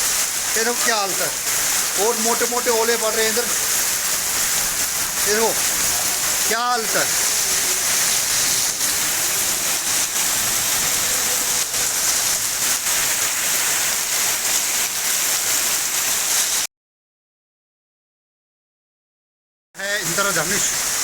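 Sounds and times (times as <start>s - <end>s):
hailstones hitting: 0.0s - 16.7s
heavy rain with hail: 0.0s - 16.7s, 19.9s - 21.0s.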